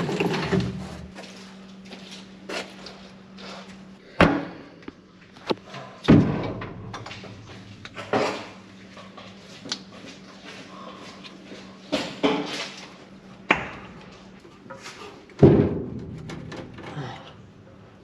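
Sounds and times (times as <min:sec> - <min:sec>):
steady low hum: 0:00.0 - 0:18.0
knocks and clunks: 0:15.4 - 0:17.0.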